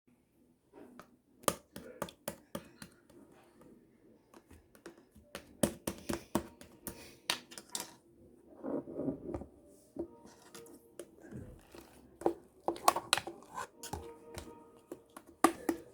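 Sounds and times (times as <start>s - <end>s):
hard objects clicking and tapping: 4.3s - 8.0s, 10.0s - 15.9s.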